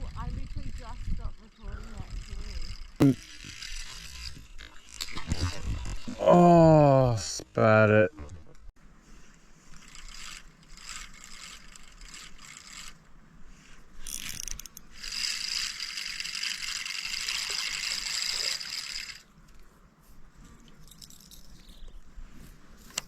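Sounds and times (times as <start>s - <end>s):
fishing reel gears whirring: 0.0s - 6.1s, 9.6s - 13.1s, 13.7s - 19.3s.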